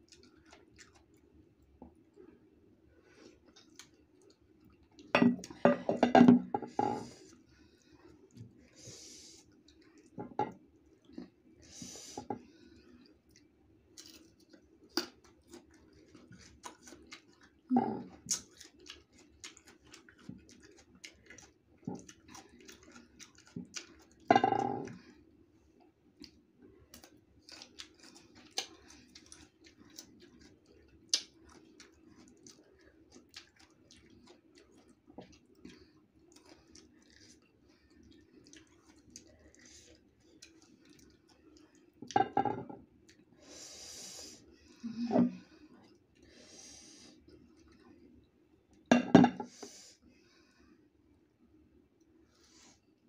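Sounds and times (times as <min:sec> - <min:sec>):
crisp chewing crunches: 0:00.0 - 0:01.3, 0:13.3 - 0:24.3, 0:27.0 - 0:42.0.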